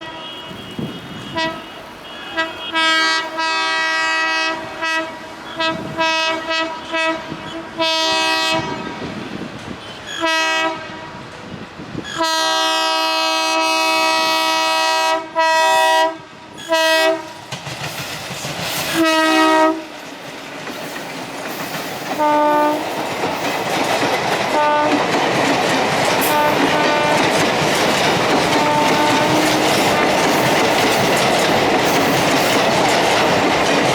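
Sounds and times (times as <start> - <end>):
locomotive horn blasts: 0.0 - 9.2, 9.8 - 11.4, 12.1 - 17.3, 18.9 - 19.9, 22.2 - 22.9, 24.5 - 25.0, 26.2 - 27.4, 28.5 - 30.1
train passing rush: 0.0 - 33.9
wheels clacking over rail joints: 17.1 - 33.9.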